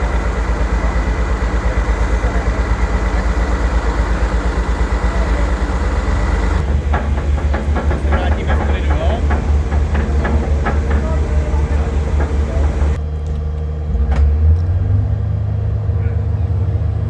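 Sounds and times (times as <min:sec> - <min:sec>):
knocks and clatter: 0:00.0 - 0:13.0
diesel truck engine throbbing: 0:00.0 - 0:17.0.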